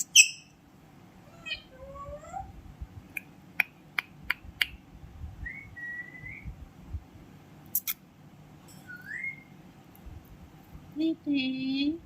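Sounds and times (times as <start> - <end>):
parrot whistling: 5.5 - 6.5, 8.8 - 9.6.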